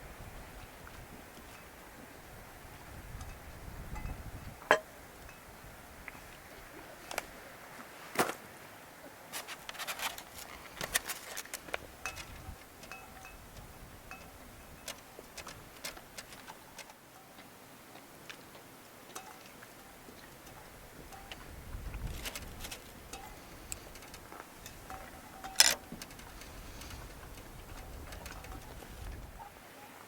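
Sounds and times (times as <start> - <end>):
small metallic clinks: 3.2 - 5.4, 11.7 - 17.4, 22.2 - 29.5
faint metallic rings: 3.2 - 5.5, 12.0 - 15.5, 19.2 - 21.5, 23.0 - 30.0
light clicks of camping gear: 7.0 - 8.4, 9.3 - 29.6.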